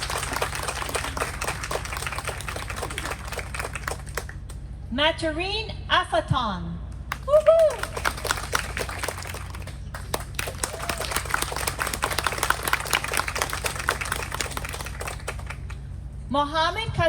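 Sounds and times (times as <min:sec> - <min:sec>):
audience applauding: 0:00.0 - 0:04.6, 0:07.1 - 0:15.8.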